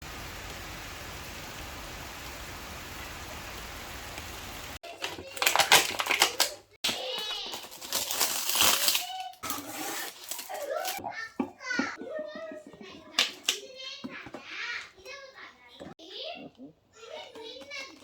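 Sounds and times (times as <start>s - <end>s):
small child's voice: 4.8s - 18.0s.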